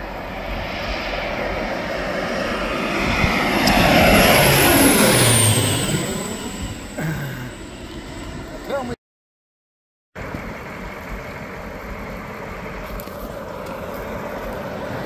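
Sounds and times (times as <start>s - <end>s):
high whine falling in pitch: 0.0s - 8.8s
airplane engine passing overhead: 0.0s - 9.0s, 10.2s - 15.0s.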